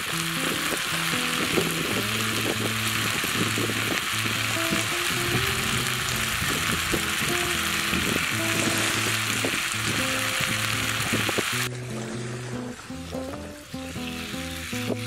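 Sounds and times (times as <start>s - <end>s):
meat and vegetables sizzling: 0.0s - 15.0s.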